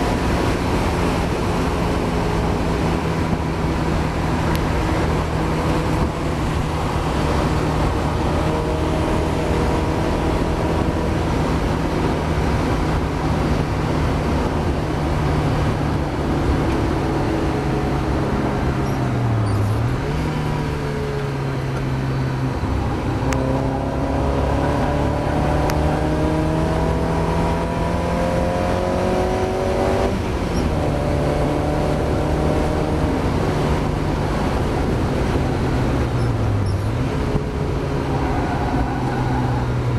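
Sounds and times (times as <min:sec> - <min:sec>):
race car engine running hard: 0:00.0 - 0:39.9
road and wind noise: 0:00.0 - 0:39.9.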